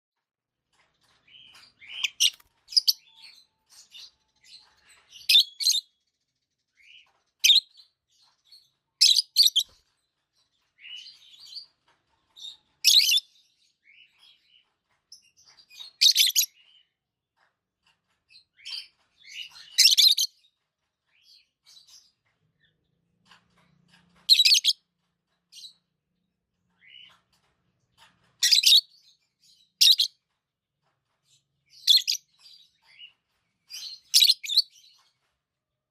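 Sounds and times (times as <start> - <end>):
soft parrot chirps and chatter: 0.6 - 35.9.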